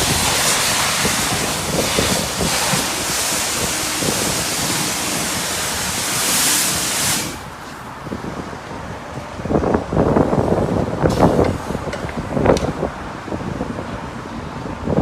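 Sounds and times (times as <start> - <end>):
high-pressure spray hissing: 0.0 - 7.8.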